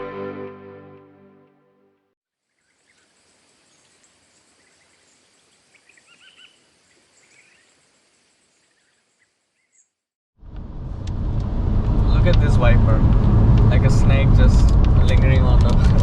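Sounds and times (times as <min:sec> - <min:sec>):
faint bird chirps: 0:02.4 - 0:10.0
background hiss: 0:02.5 - 0:09.7.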